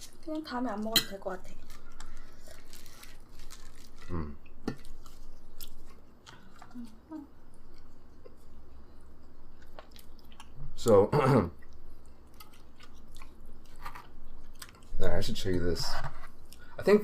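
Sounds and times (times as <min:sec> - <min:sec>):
chewing and biting food: 0:11.6 - 0:14.9.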